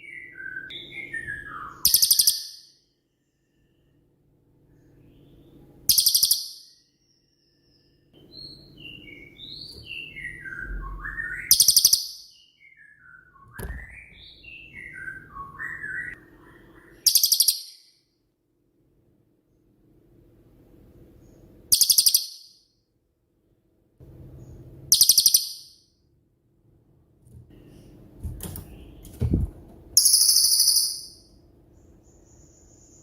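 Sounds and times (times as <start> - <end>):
songbird whistling: 0.0 - 2.7, 7.6 - 17.9, 24.9 - 25.8, 30.0 - 31.3
faint low hum: 13.0 - 33.0.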